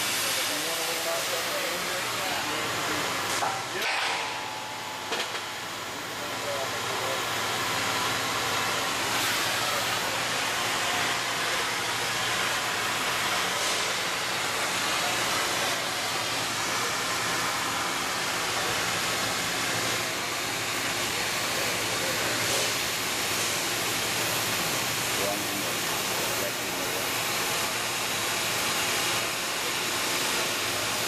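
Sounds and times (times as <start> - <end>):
faint machine hum: 0.0 - 31.0
cutting torch hissing: 5.8 - 19.0.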